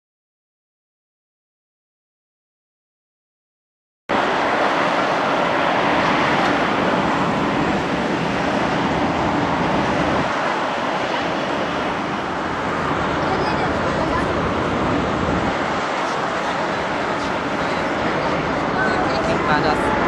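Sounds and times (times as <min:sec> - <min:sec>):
jet engine roar: 0:04.1 - 0:20.0.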